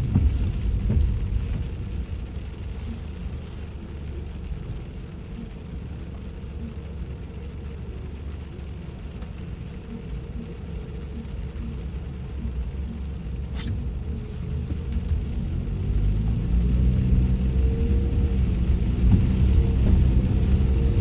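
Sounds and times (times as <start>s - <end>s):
tyre and engine rumble in car: 0.0s - 21.0s
brief hiss: 13.6s - 15.0s.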